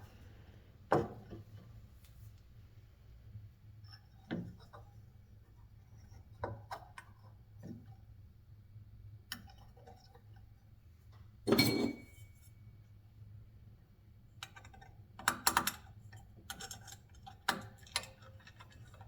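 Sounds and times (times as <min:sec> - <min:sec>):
metallic clatter with ring: 0:11.5 - 0:12.4
light clicks and knocks of metal parts: 0:14.4 - 0:19.0.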